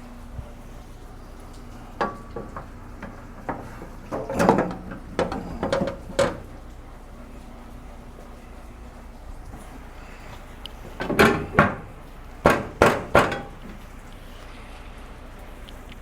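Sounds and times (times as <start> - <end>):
metal parts knocking and clanking: 2.0 - 6.6, 10.8 - 14.0.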